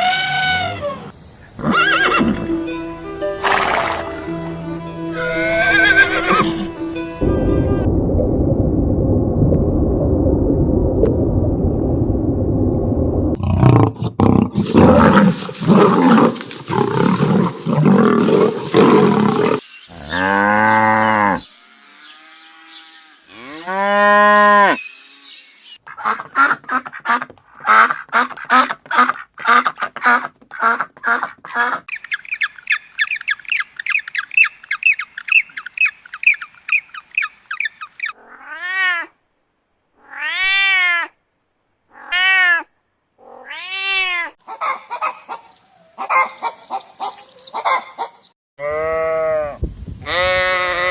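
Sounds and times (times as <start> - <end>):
rough noisy animal call: 0.0 - 2.4.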